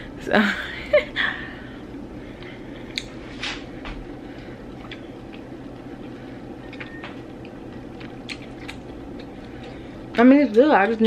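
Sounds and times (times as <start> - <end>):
steady low hum: 0.0 - 11.0
person chewing with mouth clicks: 2.4 - 3.2, 4.4 - 10.2.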